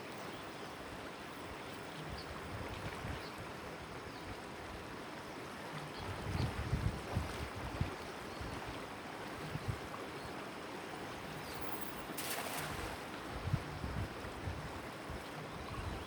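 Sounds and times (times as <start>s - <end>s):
wind buffeting microphone: 6.0s - 8.7s, 12.2s - 16.0s
water rushing past boat: 11.2s - 13.6s.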